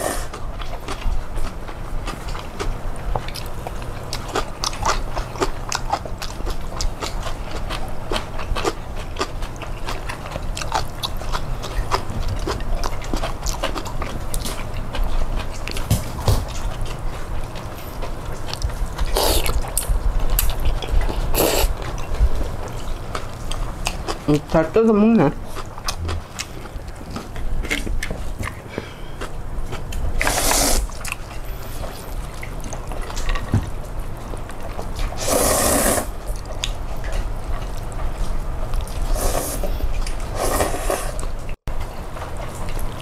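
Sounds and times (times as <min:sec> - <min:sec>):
dog chewing food: 0:00.0 - 0:43.0.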